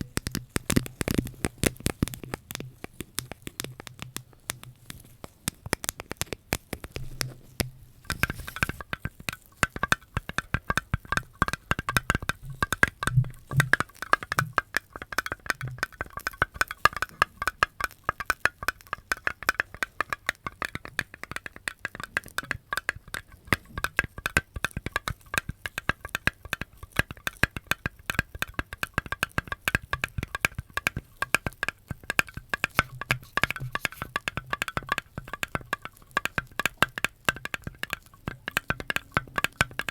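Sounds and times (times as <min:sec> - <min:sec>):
clicking and tapping on hard object: 0:00.0 - 0:39.9.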